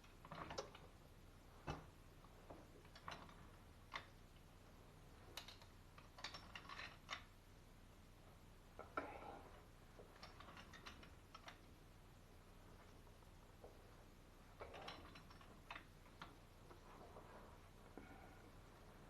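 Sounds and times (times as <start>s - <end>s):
plumbing fittings and tools clicking: 10.2s - 11.6s.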